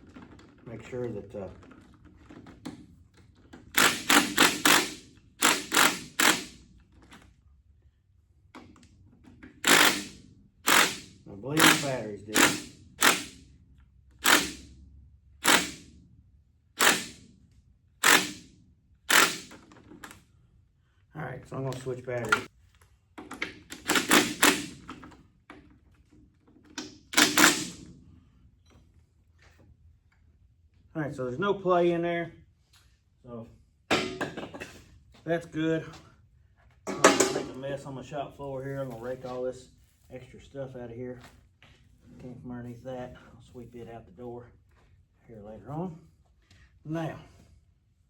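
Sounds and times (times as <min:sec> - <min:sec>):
cordless impact wrench bursts: 0:03.7 - 0:06.6, 0:09.6 - 0:13.5, 0:14.2 - 0:14.7, 0:15.4 - 0:15.9, 0:16.8 - 0:17.2, 0:18.0 - 0:18.5, 0:19.1 - 0:19.7, 0:23.8 - 0:24.9, 0:27.1 - 0:27.8.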